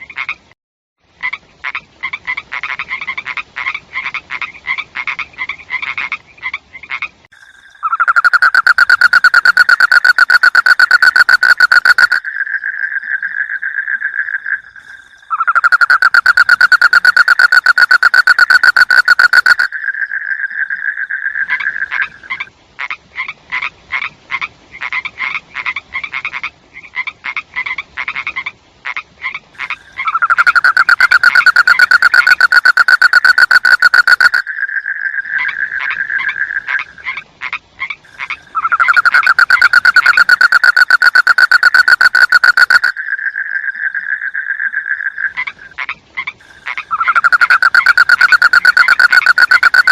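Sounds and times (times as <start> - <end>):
quiet choppy frog croaks: 1.2 - 49.9
frogs pulsing trills: 7.4 - 22.5, 29.6 - 37.2, 38.0 - 49.9.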